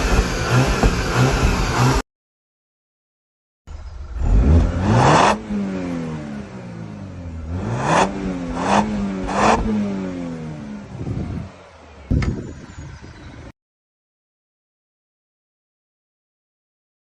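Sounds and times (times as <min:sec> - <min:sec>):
car engine revving: 0:00.0 - 0:02.0, 0:03.7 - 0:12.1
turbo rush of air: 0:00.0 - 0:02.0.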